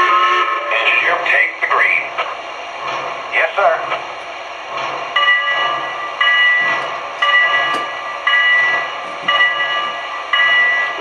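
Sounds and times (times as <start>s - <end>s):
model train bell ringing: 5.2s - 11.0s.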